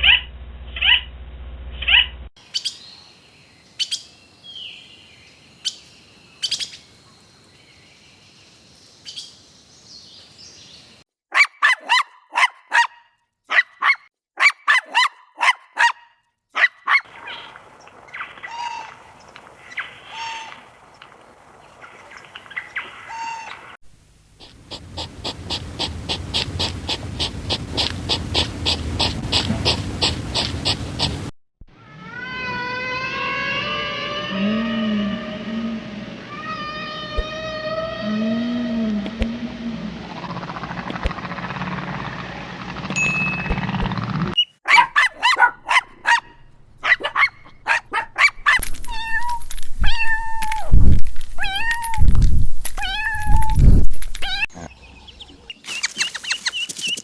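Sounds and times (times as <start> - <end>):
low hum: 0.0 - 2.3, 23.6 - 44.4
animal chirps: 1.9 - 3.2, 3.8 - 7.2, 17.1 - 20.7, 21.7 - 23.7, 24.4 - 31.1, 54.2 - 57.0.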